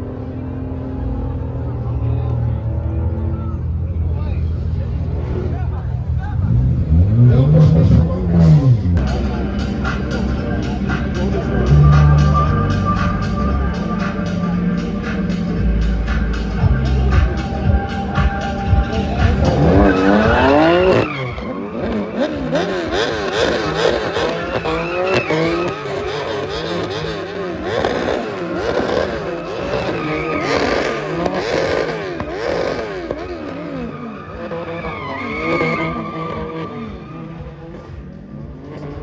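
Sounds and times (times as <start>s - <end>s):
car engine revving hard: 5.2s - 39.0s
tyres squealing: 18.8s - 37.8s.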